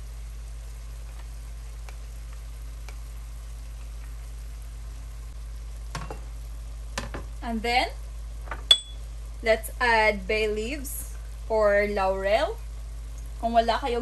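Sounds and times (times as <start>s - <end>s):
faint crackles: 0.0s - 7.4s
chicken sizzling in a pot: 0.0s - 14.0s.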